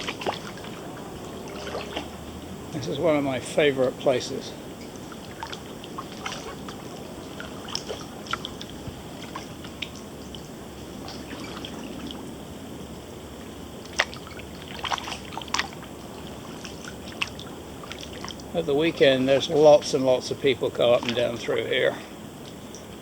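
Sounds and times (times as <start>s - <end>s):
water dripping off paddle: 4.8s - 12.2s, 13.8s - 18.6s.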